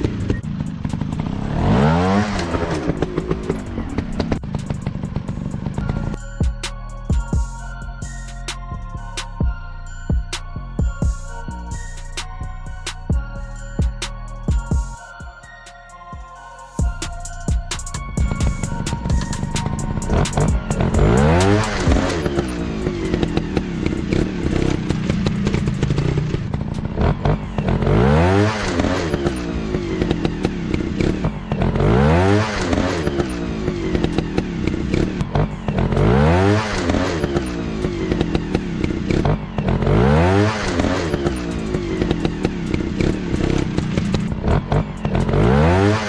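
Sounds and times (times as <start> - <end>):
dirt bike engines revving: 0.0 - 6.2, 18.2 - 46.0.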